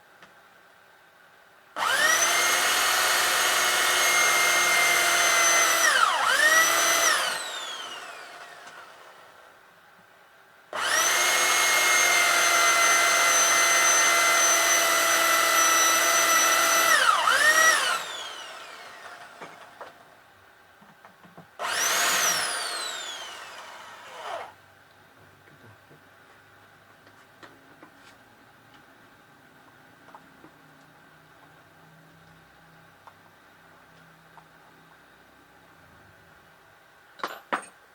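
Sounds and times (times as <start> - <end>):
electric drill drilling metal: 1.8 - 9.3, 10.8 - 20.0, 21.6 - 24.6.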